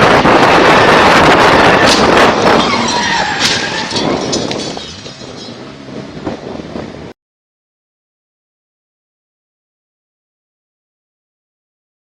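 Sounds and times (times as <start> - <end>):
car engine: 0.0 - 7.1
road noise: 0.0 - 7.2.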